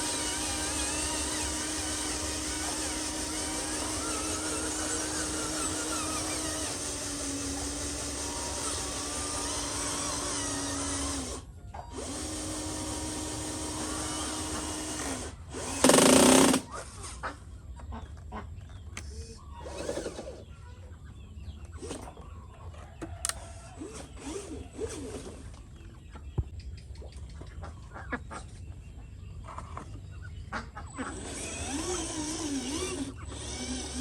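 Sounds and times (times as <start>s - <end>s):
small electric motor whine: 0.0s - 17.0s, 19.0s - 20.6s, 23.2s - 25.6s, 31.0s - 34.0s
loud burst of noise: 15.8s - 16.7s.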